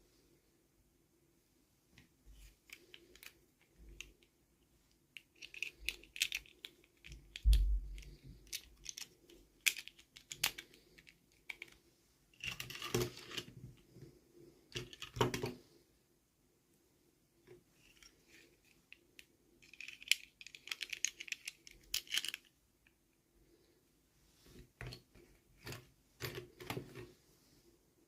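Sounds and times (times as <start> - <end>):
plastic toy packaging clicking: 5.2 - 11.8, 19.6 - 22.5.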